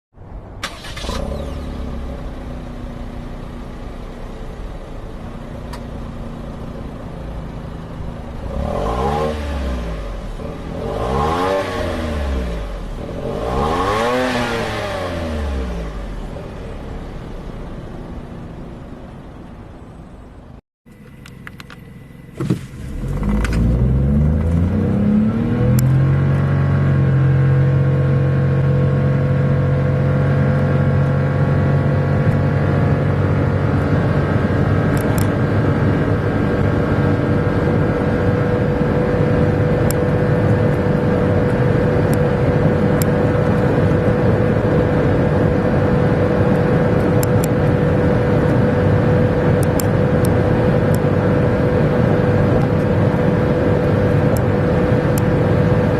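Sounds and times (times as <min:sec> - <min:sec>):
car engine starting and revving: 0:00.5 - 0:20.2, 0:21.0 - 0:55.9
steady whine: 0:15.9 - 0:26.0.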